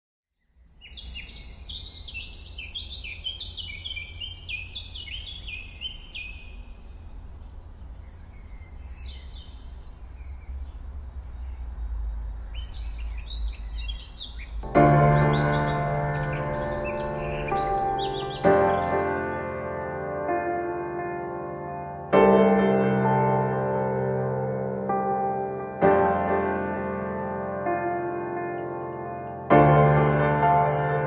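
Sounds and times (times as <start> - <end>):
songbirds chirping: 0.3 - 22.0, 25.0 - 31.0
steady low rumble: 6.4 - 18.3.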